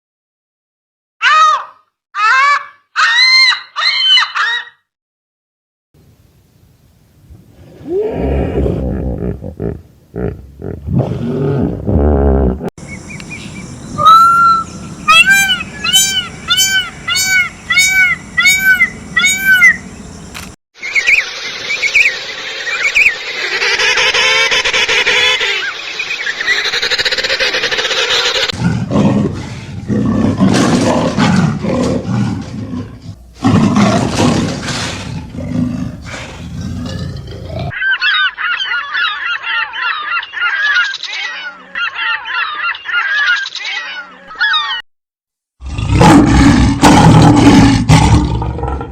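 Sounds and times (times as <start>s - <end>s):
low-pitched animal calls: 7.7s - 11.2s, 11.9s - 20.2s
noisy animal call: 12.8s - 20.4s, 35.8s - 44.8s
rapid high-pitched animal calls: 12.9s - 20.0s, 37.7s - 44.8s.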